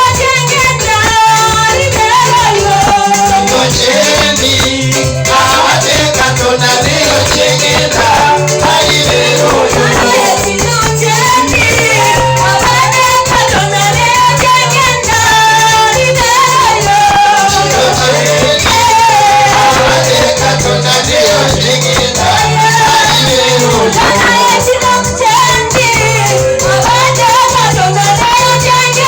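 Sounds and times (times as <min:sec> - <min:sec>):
band playing: 0:00.0 - 0:29.0
pulsing bass line: 0:00.0 - 0:29.0
voices singing praise music: 0:00.0 - 0:29.0.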